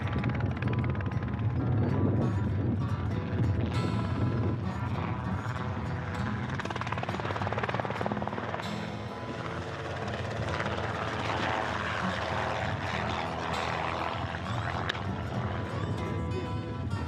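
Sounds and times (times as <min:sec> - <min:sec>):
helicopter rotor chopping: 0:00.0 - 0:17.0.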